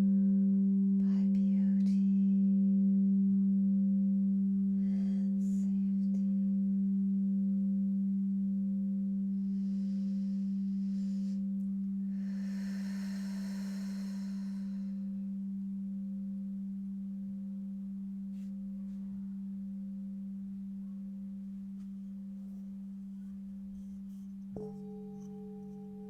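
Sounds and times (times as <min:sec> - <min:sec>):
soft hiss: 0:09.3 - 0:26.0
singing bowl ringing: 0:19.4 - 0:26.0
higher singing bowl struck: 0:24.6 - 0:26.0.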